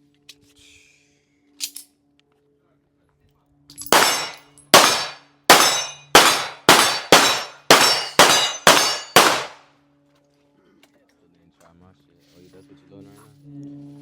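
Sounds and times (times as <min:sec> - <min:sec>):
gunshots with ringing tail: 0:03.9 - 0:09.6.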